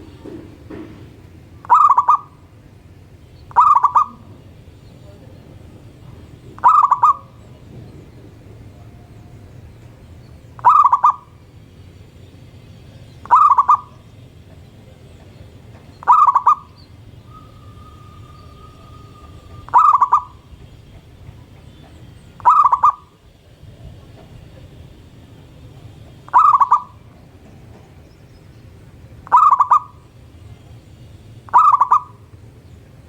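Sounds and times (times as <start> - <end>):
dove cooing: 1.6 - 2.5, 3.5 - 4.6, 6.1 - 7.6, 10.6 - 11.4, 13.2 - 14.1, 15.7 - 20.7, 22.3 - 23.2, 26.2 - 27.1, 29.2 - 30.2, 31.5 - 32.3.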